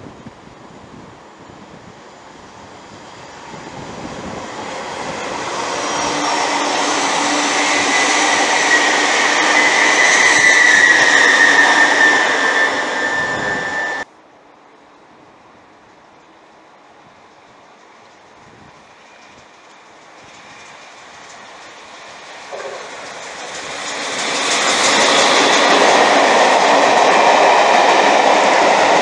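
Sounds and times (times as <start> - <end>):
high steady whine: 0.0 - 14.1
train passing: 0.6 - 29.0.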